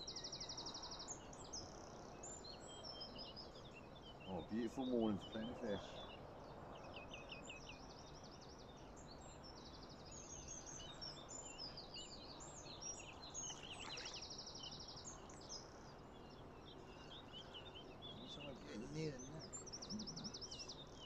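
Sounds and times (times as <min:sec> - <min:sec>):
small birds singing and calling: 0:00.0 - 0:21.0.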